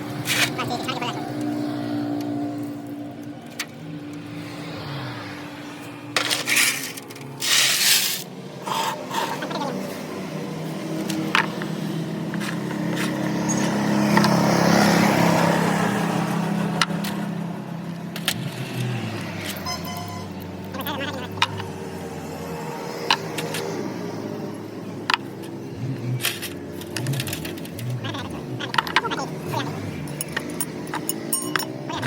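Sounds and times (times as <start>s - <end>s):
metal scraping and clicking: 6.2s - 9.4s, 26.2s - 28.0s, 30.0s - 32.0s.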